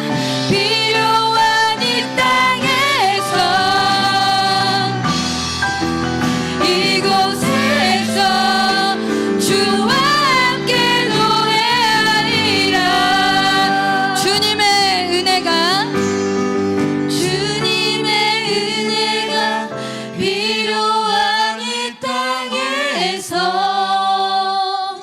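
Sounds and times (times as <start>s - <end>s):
worship band playing slow song: 0.0s - 25.0s
person singing with vibrato: 6.5s - 16.1s.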